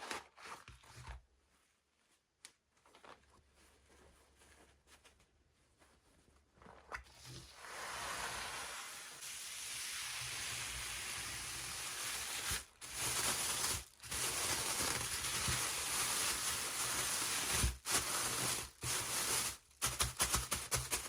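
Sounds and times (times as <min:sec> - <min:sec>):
packaging rustling: 0:12.5 - 0:20.1.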